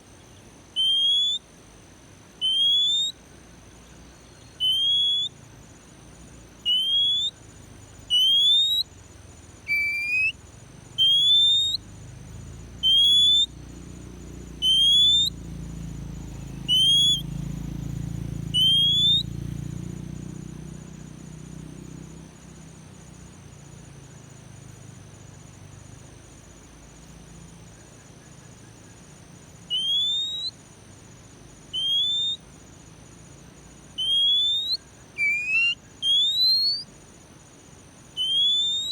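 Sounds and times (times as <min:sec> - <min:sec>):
faint steady high tones: 0:00.0 - 0:20.0, 0:22.6 - 0:38.9
bird rising whistles: 0:00.8 - 0:01.4, 0:02.4 - 0:03.2, 0:04.5 - 0:05.4, 0:06.6 - 0:07.4, 0:08.1 - 0:08.9, 0:09.7 - 0:10.4, 0:11.0 - 0:11.8, 0:12.8 - 0:13.5, 0:14.6 - 0:15.4, 0:16.5 - 0:17.3, 0:18.5 - 0:19.3, 0:29.6 - 0:30.6, 0:31.7 - 0:32.4, 0:33.9 - 0:36.9, 0:38.2 - 0:38.9.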